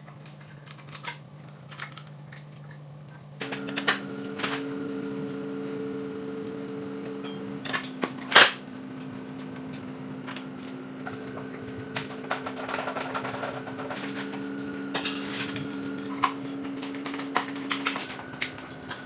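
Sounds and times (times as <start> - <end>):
tools and metal parts clicking: 0.0 - 3.9
steady hum: 0.0 - 19.0.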